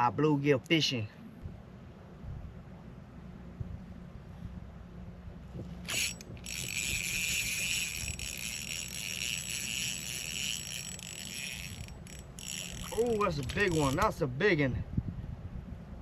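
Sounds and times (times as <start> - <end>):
fishing reel whirring: 5.8 - 14.1.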